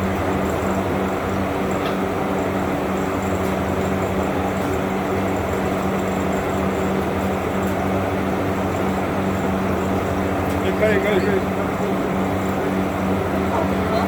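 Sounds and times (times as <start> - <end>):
steady mechanical drone: 0.0 - 14.0.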